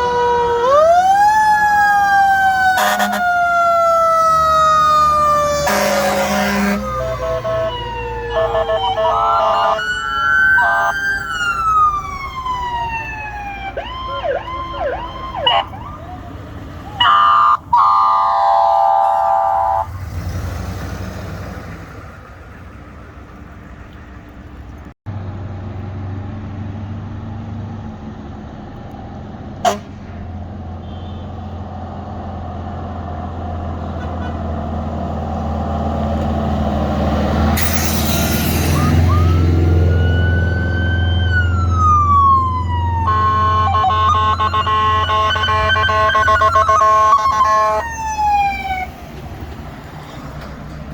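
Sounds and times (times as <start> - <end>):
electronic siren wailing and yelping: 0.0 - 19.9, 37.6 - 49.0
fire truck diesel engine: 0.0 - 50.9
steady horn blast: 2.8 - 3.3, 5.6 - 9.8, 17.1 - 19.9, 43.0 - 47.8.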